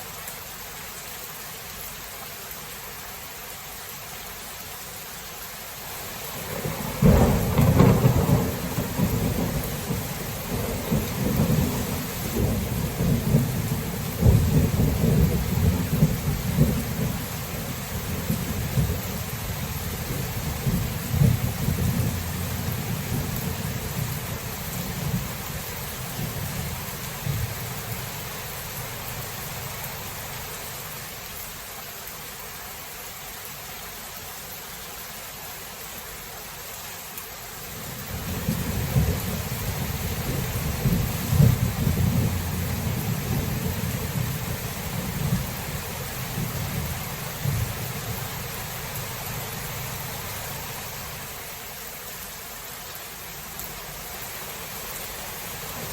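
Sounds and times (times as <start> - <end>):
steady rain: 0.0 - 55.9
rolling rumble of thunder: 6.4 - 30.2, 37.9 - 49.0
thunderclap: 6.5 - 17.2, 38.3 - 45.6.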